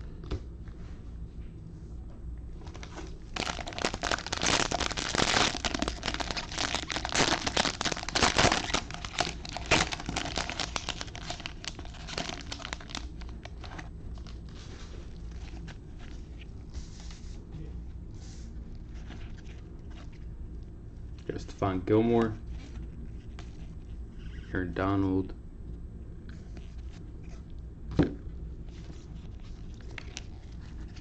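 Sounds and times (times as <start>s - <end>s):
plastic wrapper crinkling: 2.6s - 16.4s, 28.7s - 31.0s.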